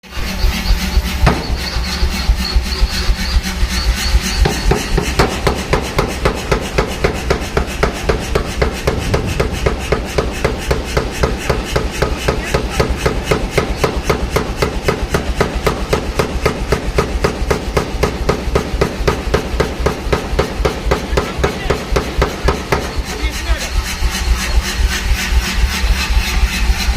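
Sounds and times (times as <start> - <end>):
steady low drone: 0.0 - 26.9
forging hammer striking: 0.9 - 25.8.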